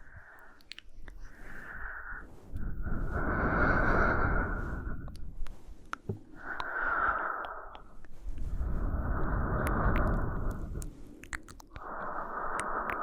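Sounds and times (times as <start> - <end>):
woman breathing slowly: 0.0 - 13.0
faint clicks: 5.1 - 8.2.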